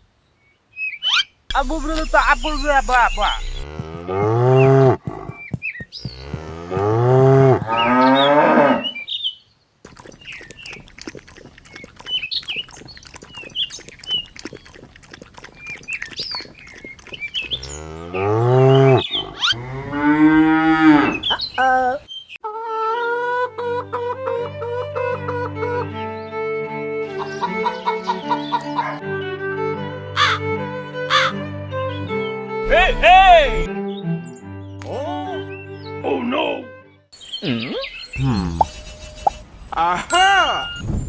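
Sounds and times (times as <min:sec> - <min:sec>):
cows mooing: 0:02.0 - 0:09.0, 0:16.5 - 0:21.7.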